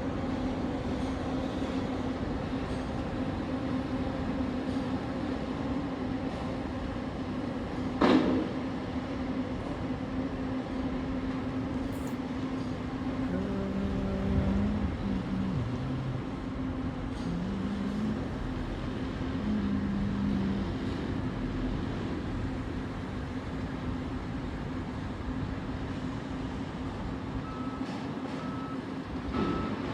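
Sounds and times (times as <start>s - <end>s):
large engine humming: 9.6s - 29.9s.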